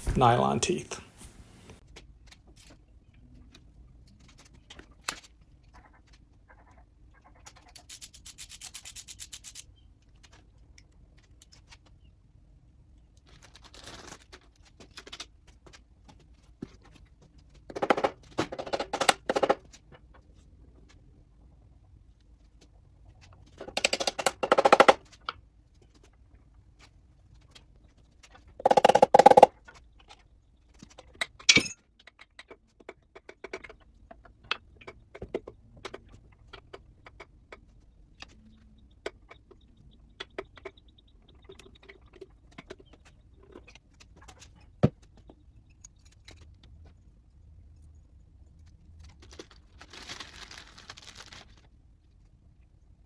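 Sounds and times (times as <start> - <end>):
metal parts clinking: 31.5 - 31.8.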